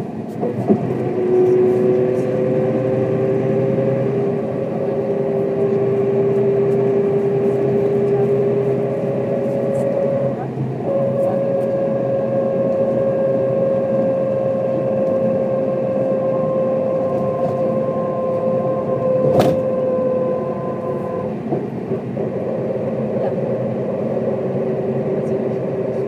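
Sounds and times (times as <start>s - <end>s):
bus engine whine: 0.0s - 26.0s.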